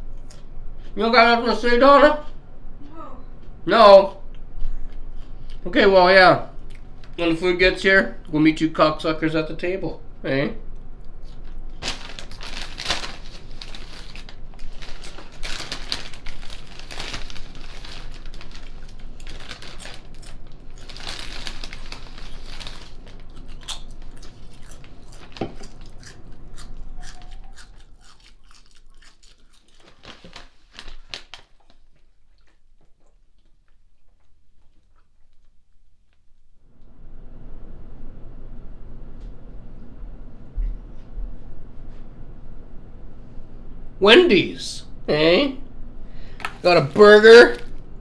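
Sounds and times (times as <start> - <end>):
packaging crinkling and rustling: 11.4 - 26.0, 28.6 - 32.0, 46.3 - 47.9.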